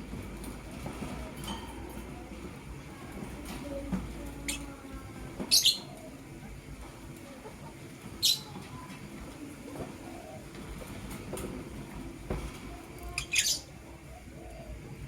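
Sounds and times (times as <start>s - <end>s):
birds chirping and squawking: 4.4s - 6.4s, 7.6s - 8.9s, 13.0s - 15.0s.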